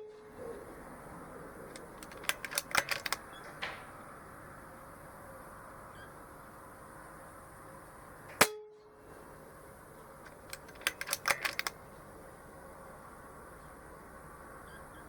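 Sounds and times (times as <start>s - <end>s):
rapid clicks: 1.7s - 3.8s, 10.2s - 11.8s.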